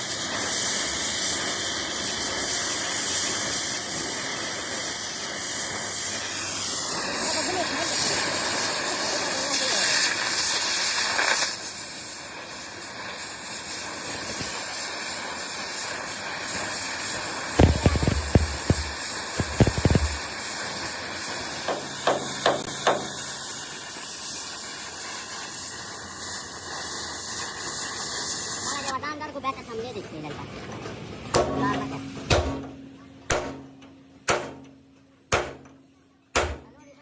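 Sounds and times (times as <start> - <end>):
steady hissing workshop noise: 0.0 - 37.0
sharp knocks: 17.6 - 20.2, 34.3 - 36.7.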